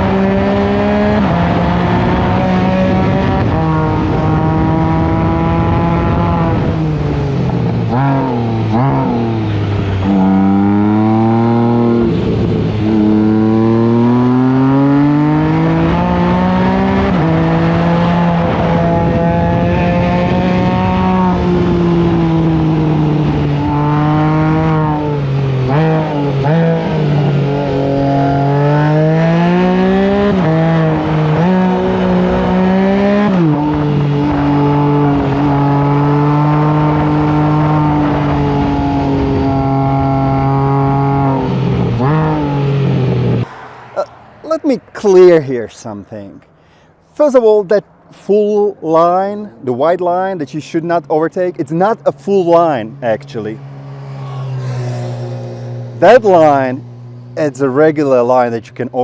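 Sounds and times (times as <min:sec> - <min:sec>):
wind noise: 0:00.0 - 0:28.6, 0:29.5 - 0:45.8
motorcycle engine accelerating hard: 0:00.0 - 0:44.6, 0:51.7 - 0:59.0
road noise: 0:00.0 - 0:59.0.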